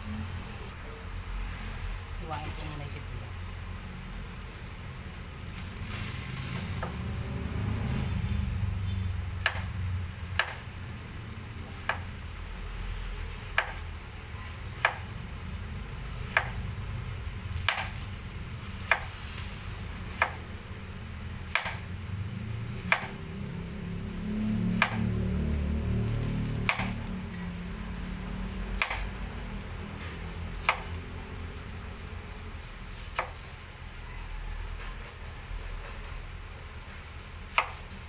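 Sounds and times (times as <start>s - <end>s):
steady low hum: 0.0s - 34.1s
knife chopping on board: 20.2s - 20.4s, 22.9s - 23.2s, 30.6s - 31.0s.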